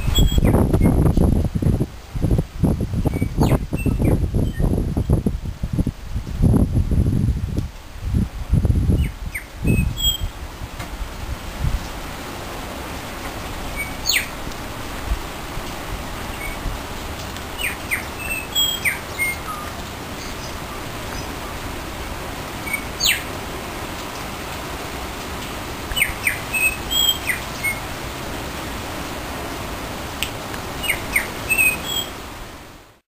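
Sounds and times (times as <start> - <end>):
rain hissing: 0.0 - 33.0
small birds chirping: 3.0 - 4.7, 8.9 - 10.3, 13.4 - 14.4, 17.5 - 21.7, 22.6 - 23.4, 25.9 - 27.9, 30.8 - 32.2.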